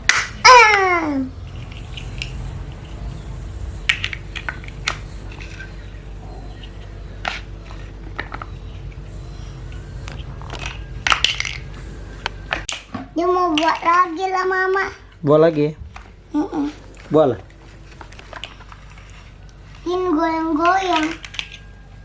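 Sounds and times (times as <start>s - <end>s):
steady low hum: 0.0s - 22.0s
plastic toy blocks clicking: 20.6s - 21.7s.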